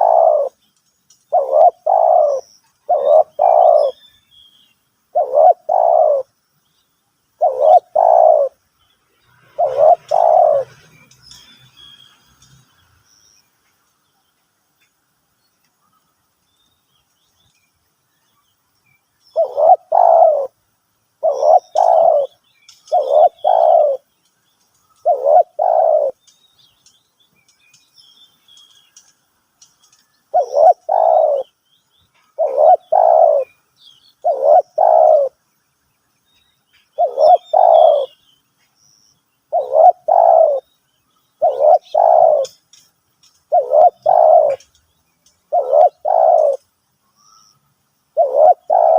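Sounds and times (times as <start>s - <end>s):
dove cooing: 0.0s - 0.6s, 1.3s - 4.0s, 5.1s - 6.3s, 7.4s - 8.6s, 9.4s - 10.9s, 19.4s - 20.5s, 21.2s - 24.0s, 25.0s - 26.2s, 30.3s - 31.5s, 32.3s - 33.6s, 34.2s - 35.4s, 37.0s - 38.2s, 39.5s - 40.6s, 41.4s - 42.6s, 43.5s - 44.7s, 45.5s - 46.6s, 48.2s - 48.9s
faint small-bird chirps: 0.0s - 20.6s, 21.2s - 48.9s.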